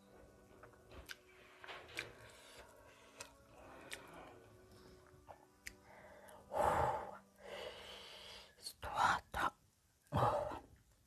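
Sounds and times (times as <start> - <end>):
person chewing: 1.0 - 1.3, 1.9 - 4.4.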